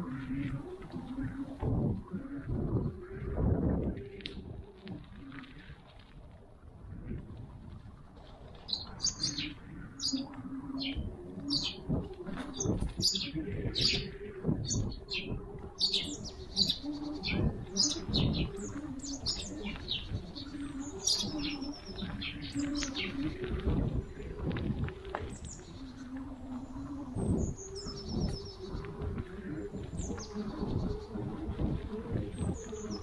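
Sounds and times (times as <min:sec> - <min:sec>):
songbirds chirping: 0:00.0 - 0:33.0
pigeon cooing: 0:08.8 - 0:33.0.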